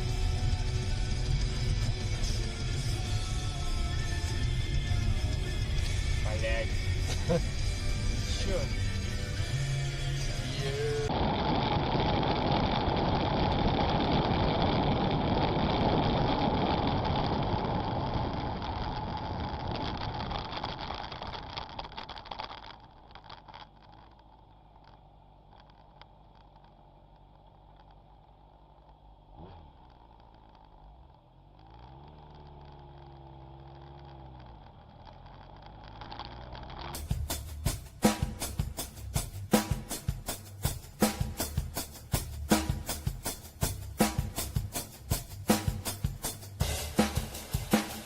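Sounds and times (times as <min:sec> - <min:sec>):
car road and engine noise: 0:00.0 - 0:48.0.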